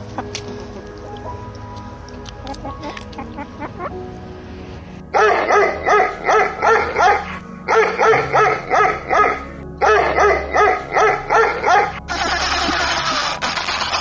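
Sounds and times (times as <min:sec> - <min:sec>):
dog barking: 0:05.2 - 0:12.0.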